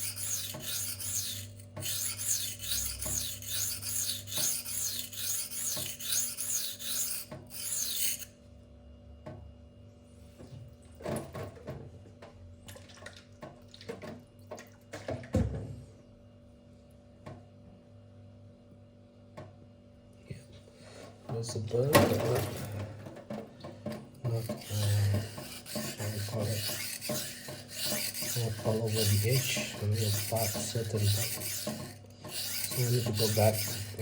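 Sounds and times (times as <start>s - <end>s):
knife rasping on whetstone: 0.0s - 8.3s, 24.3s - 34.0s.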